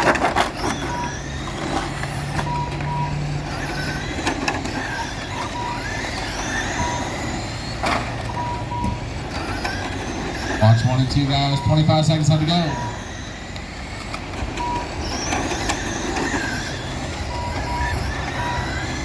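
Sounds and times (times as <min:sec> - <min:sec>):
electric motors whining: 0:00.0 - 0:19.0
short electronic beeps: 0:04.9 - 0:07.5, 0:08.2 - 0:09.0, 0:10.6 - 0:13.2, 0:17.1 - 0:19.0.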